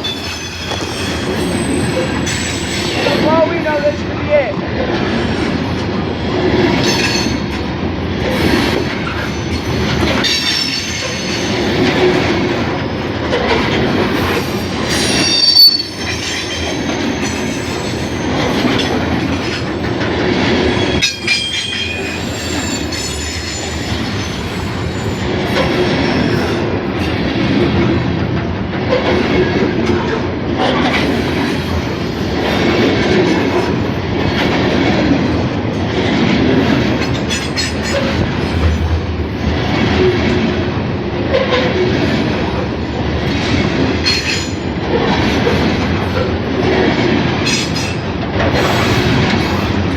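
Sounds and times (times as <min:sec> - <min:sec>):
train wheels squealing: 0:00.0 - 0:03.2, 0:08.4 - 0:11.8, 0:14.1 - 0:18.6, 0:20.6 - 0:27.2
train cars clacking over rail joints: 0:00.0 - 0:49.9.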